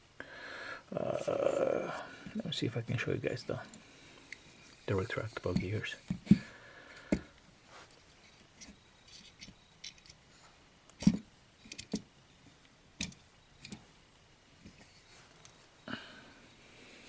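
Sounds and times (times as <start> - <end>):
toy plastic clicks and knocks: 13.0 - 13.8.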